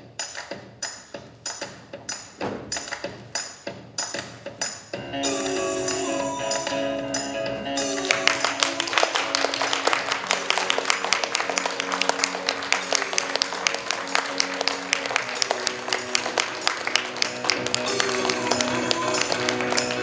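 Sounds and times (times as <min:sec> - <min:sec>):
music with held tones: 0:03.2 - 0:20.0
audience applauding: 0:07.9 - 0:20.0.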